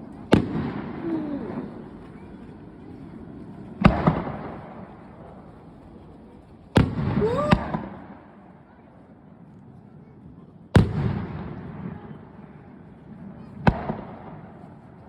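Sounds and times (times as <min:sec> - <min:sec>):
fireworks booming: 0:00.3 - 0:01.9.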